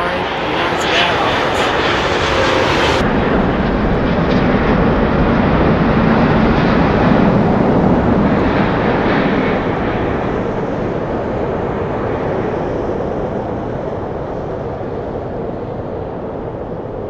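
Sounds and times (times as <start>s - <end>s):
jet aircraft rumble: 0.0s - 12.8s.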